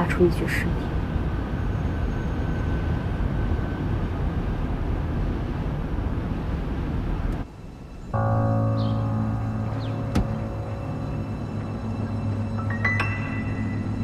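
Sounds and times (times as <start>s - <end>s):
tense music chord: 7.6s - 14.0s
car driving rumble: 8.1s - 14.0s.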